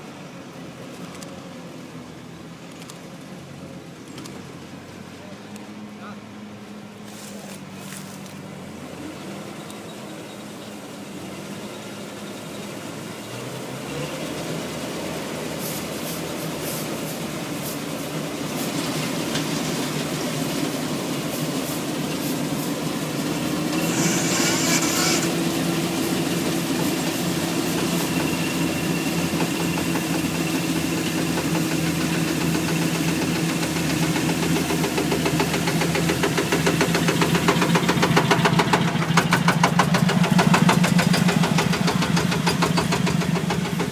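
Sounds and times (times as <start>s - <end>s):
truck diesel engine running: 3.3s - 43.9s
short hiss: 23.7s - 25.4s.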